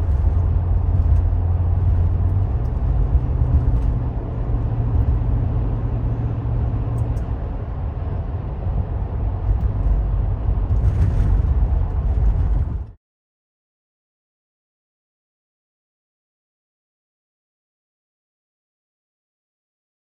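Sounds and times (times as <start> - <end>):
car engine running: 0.0 - 12.9
road rumble: 0.0 - 13.0.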